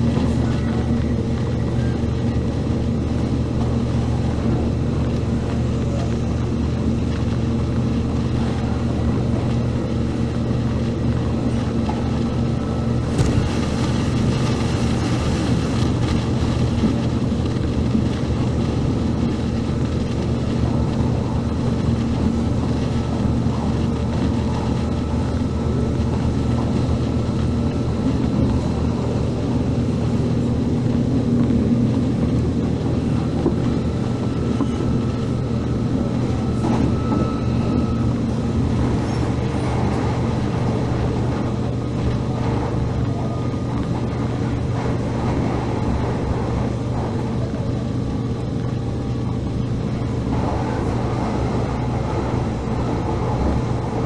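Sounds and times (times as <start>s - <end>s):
electric train motors humming: 0.0s - 54.0s
faint high whine: 33.0s - 39.2s.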